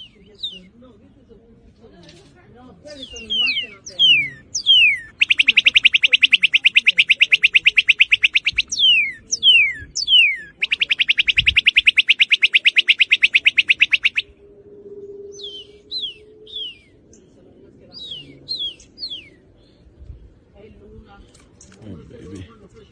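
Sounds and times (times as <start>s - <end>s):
bird whistles and trills: 3.0s - 14.4s, 15.0s - 17.0s.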